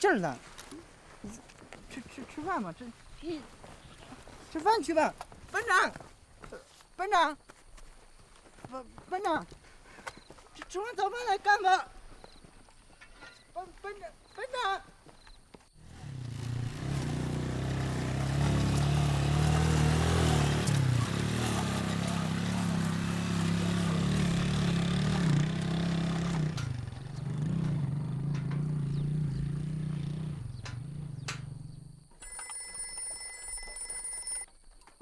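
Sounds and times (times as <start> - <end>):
engine running: 15.8 - 32.1
telephone ringing: 32.1 - 34.5.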